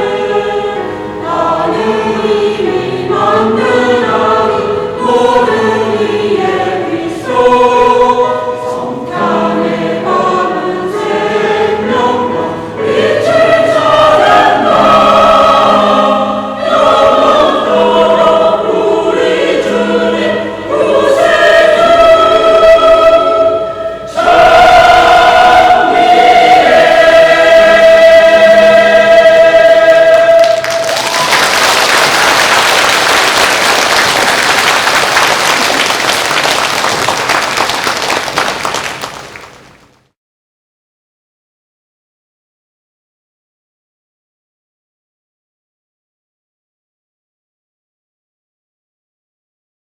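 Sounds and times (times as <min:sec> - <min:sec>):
church choir singing: 0:00.0 - 0:33.1
congregation applauding: 0:30.3 - 0:40.0.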